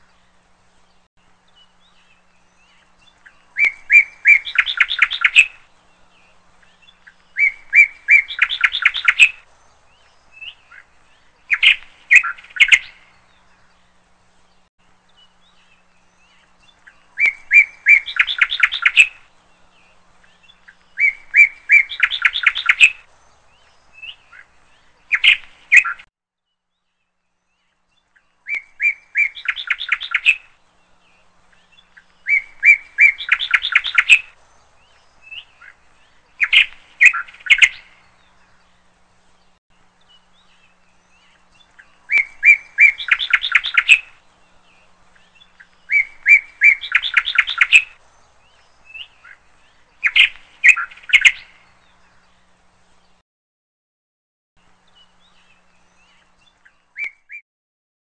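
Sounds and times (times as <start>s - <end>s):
songbird singing: 0.0s - 53.2s, 54.6s - 57.4s
short bird calls: 35.2s - 38.1s, 50.0s - 51.7s.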